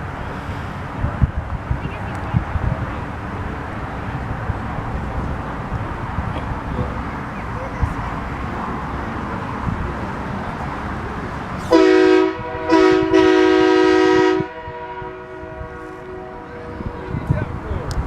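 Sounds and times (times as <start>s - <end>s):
horn blasts: 11.7s - 17.7s.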